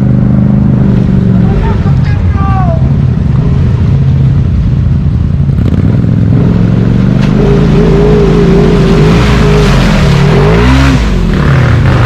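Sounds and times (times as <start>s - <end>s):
atv engine revving: 0.0s - 2.2s, 2.8s - 12.0s
wavering engine whine: 0.0s - 11.8s.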